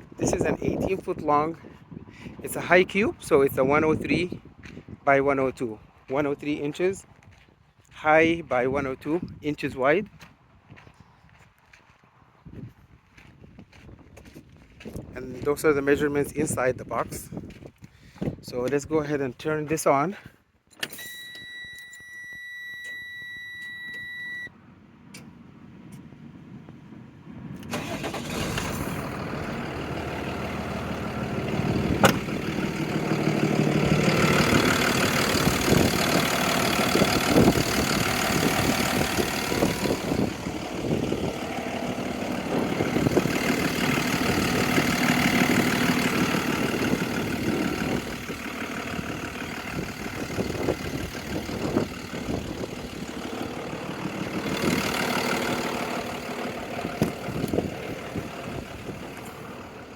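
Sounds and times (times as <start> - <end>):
diesel truck engine idling: 27.7 - 59.9.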